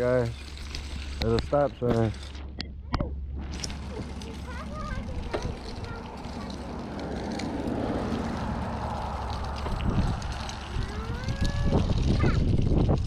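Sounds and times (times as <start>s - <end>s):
low rumble of bicycle riding: 0.0s - 13.0s
wind on microphone: 5.1s - 13.0s.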